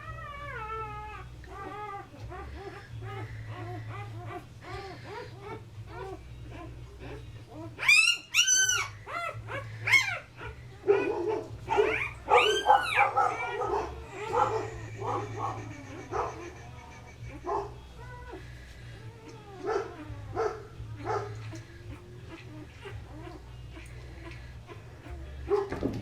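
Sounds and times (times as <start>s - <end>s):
puppies crying: 0.0s - 26.0s.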